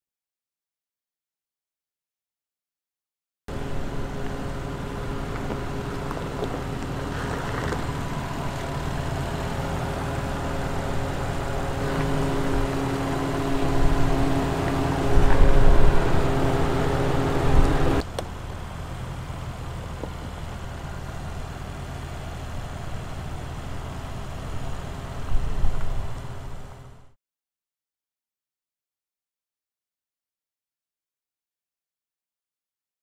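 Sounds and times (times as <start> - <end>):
engine running at low revs: 3.5 - 27.2.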